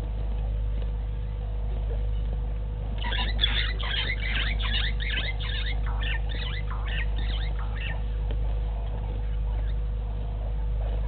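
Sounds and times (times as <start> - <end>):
bird calling: 3.0 - 8.2.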